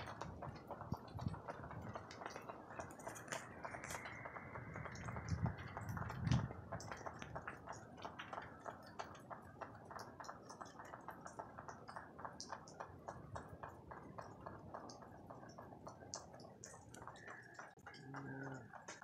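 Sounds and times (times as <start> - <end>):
rain dripping: 0.0 - 19.0.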